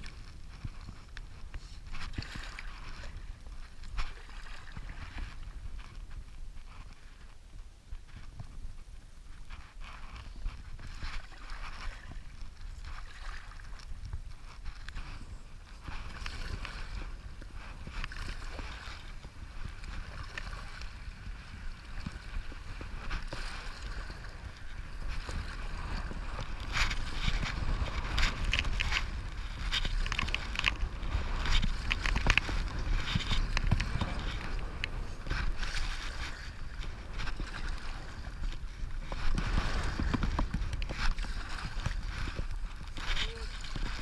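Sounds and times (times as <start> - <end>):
wind buffeting microphone: 10.0 - 44.0.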